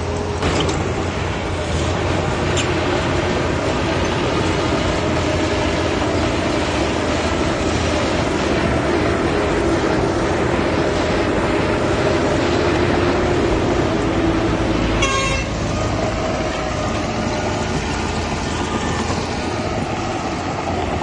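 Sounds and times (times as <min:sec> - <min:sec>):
heavy diesel machinery running: 0:00.0 - 0:21.0
short high-pitched toot: 0:15.0 - 0:15.6.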